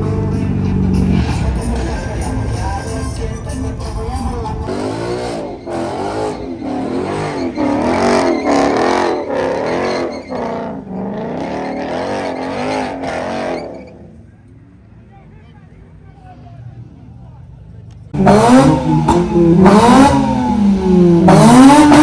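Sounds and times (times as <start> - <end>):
deep engine rumble: 0.0 - 22.0
car tires squealing: 4.6 - 14.4, 18.2 - 22.0.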